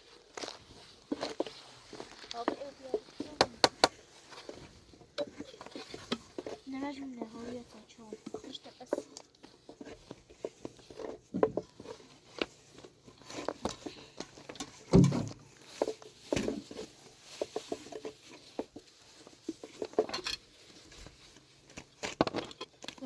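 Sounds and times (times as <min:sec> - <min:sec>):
objects clicking and tapping: 0:00.3 - 0:23.0
heavy thump: 0:14.9 - 0:15.4.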